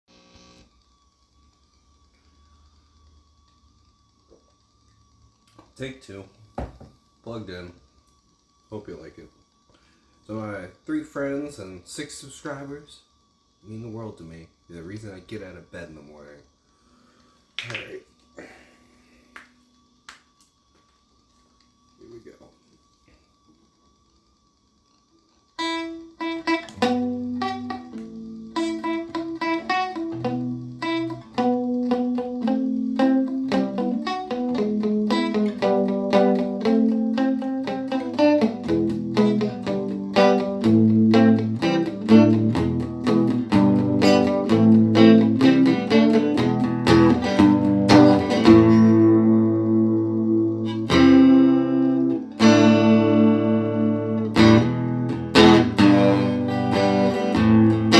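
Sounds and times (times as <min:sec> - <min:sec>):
faint steady hum: 0:00.1 - 0:57.9
electric guitar picked notes and chords: 0:25.6 - 0:57.9.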